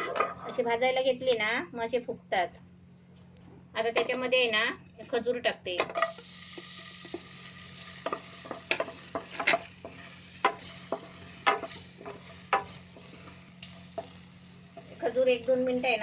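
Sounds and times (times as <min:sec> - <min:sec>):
food sizzling in a pan: 0:05.9 - 0:16.0
wooden spatula knocking pan: 0:08.0 - 0:13.0.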